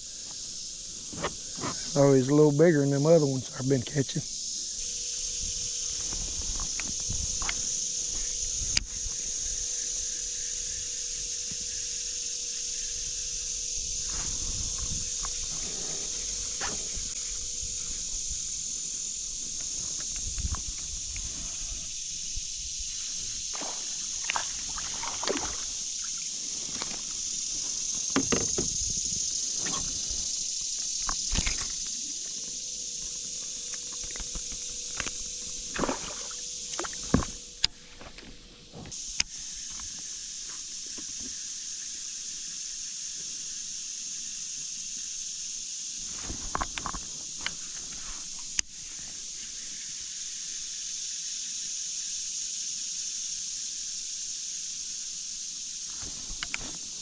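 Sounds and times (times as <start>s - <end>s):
insects droning: 0.0s - 57.0s
water sloshing: 23.6s - 27.1s, 33.7s - 37.4s.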